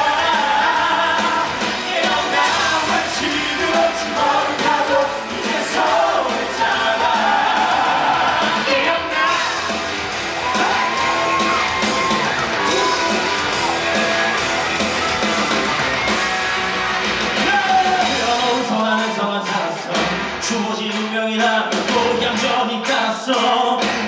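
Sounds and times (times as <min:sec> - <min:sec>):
shouted vocals: 0:00.0 - 0:16.1, 0:17.4 - 0:20.0
cast singing rock song: 0:00.0 - 0:24.0
rock band playing: 0:00.0 - 0:24.0.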